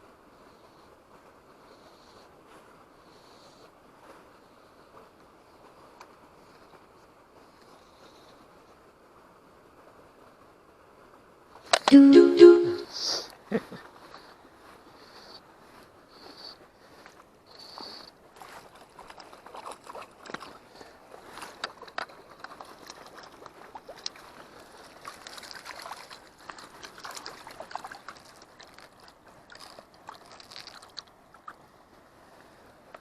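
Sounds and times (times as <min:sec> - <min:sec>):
water splashing in a stream: 0:18.3 - 0:31.6.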